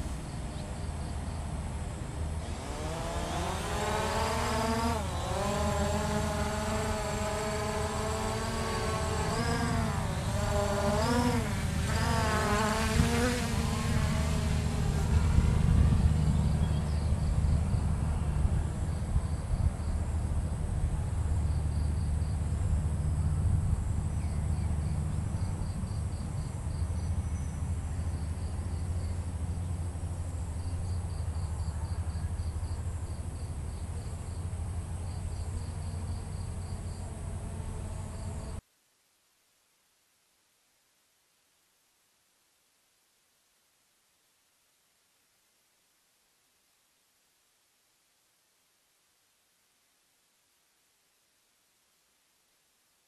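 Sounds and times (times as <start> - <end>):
drone motors whining: 2.4 - 18.4.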